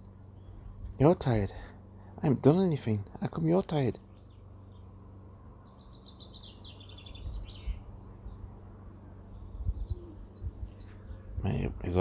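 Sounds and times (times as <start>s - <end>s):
faint low hum: 0.0s - 12.0s
songbird trilling: 4.1s - 8.5s, 9.3s - 11.4s.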